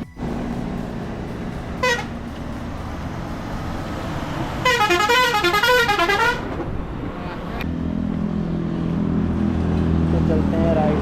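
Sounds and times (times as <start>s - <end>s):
engine and traffic hum: 0.0s - 11.0s
loud warbling horn: 1.7s - 2.4s, 4.4s - 6.6s.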